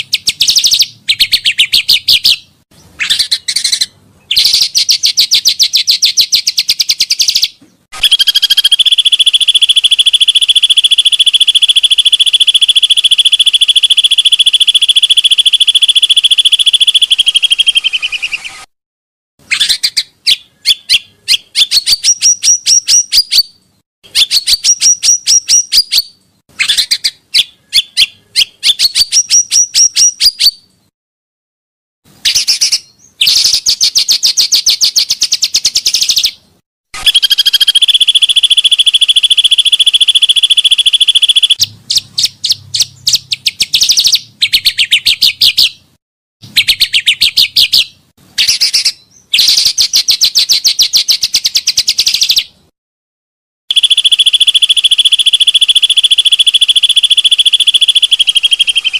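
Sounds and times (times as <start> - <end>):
bird chattering trills: 8.0 - 18.7, 53.7 - 58.9.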